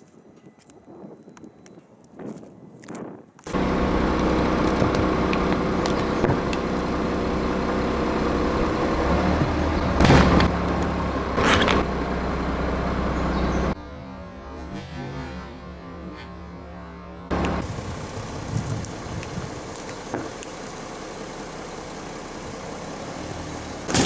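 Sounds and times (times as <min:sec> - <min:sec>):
car engine running: 0:03.5 - 0:13.8, 0:17.3 - 0:24.0.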